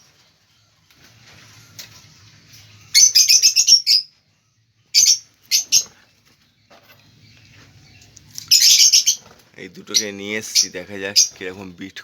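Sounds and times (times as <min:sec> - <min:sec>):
parrots chirping: 0:02.8 - 0:04.2, 0:04.9 - 0:06.2, 0:07.0 - 0:11.5.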